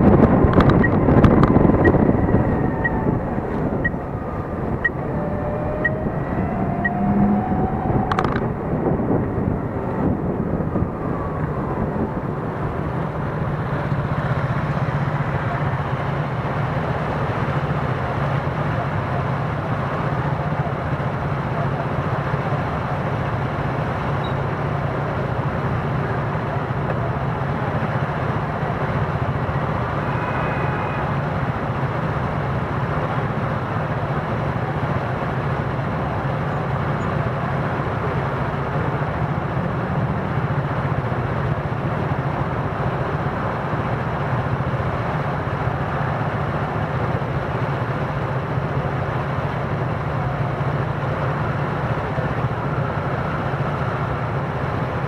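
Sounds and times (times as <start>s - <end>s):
wind and road noise: 0.0s - 55.0s
faint high tone: 1.8s - 8.7s, 29.6s - 31.3s.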